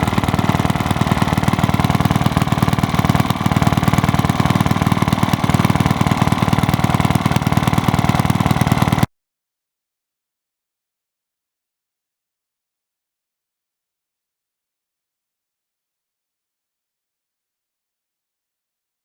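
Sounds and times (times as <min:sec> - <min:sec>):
stationary engine running: 0:00.0 - 0:09.1.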